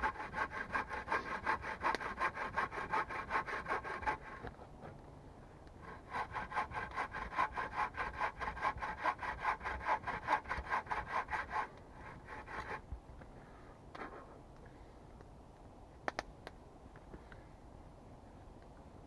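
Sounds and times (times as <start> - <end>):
hand saw cutting wood: 0.0 - 4.6, 5.8 - 12.8.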